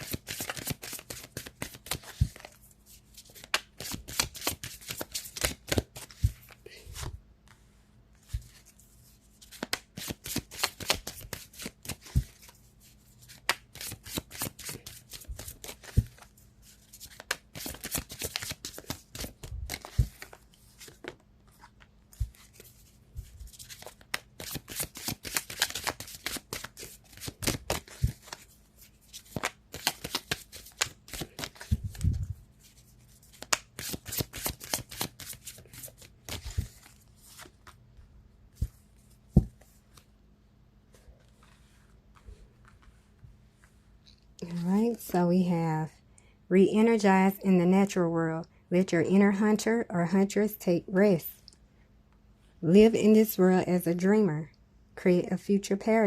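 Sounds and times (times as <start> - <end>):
cards being shuffled: 0.0 - 7.2, 8.2 - 37.8.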